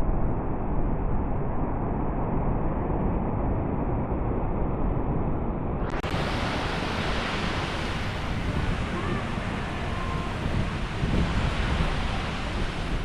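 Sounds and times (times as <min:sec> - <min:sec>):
wind buffeting the microphone: 0:00.0 - 0:13.0
sea surf washing on a beach: 0:05.9 - 0:13.0.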